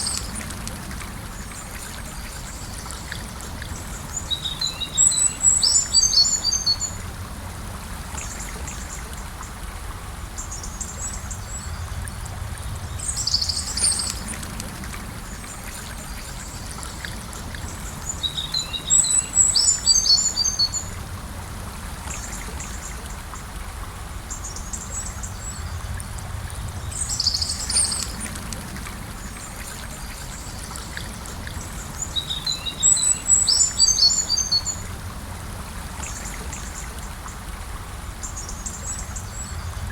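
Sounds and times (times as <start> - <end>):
river flowing: 0.0 - 39.9
songbird chirping: 10.6 - 14.5, 15.5 - 21.0, 26.8 - 28.4, 29.3 - 34.8.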